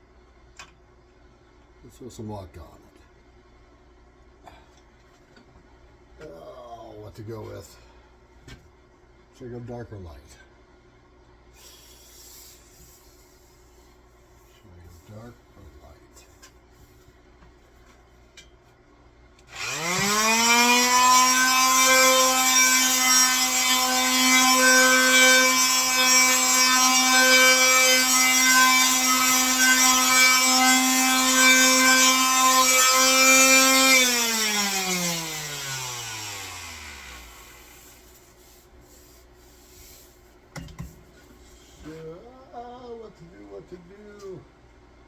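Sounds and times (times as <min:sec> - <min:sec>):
power tool motor running: 0:19.5 - 0:38.1.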